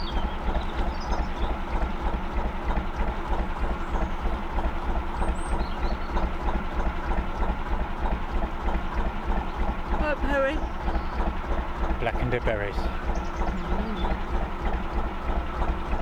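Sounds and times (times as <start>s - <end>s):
diesel boat engine running: 0.0s - 16.0s
faint bird chirps: 13.1s - 14.3s.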